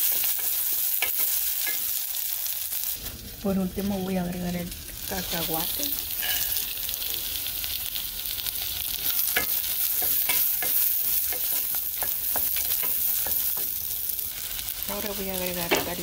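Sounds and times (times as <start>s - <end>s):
frying sizzle: 0.0s - 16.0s
wooden spoon knocking metal pot: 9.4s - 13.8s.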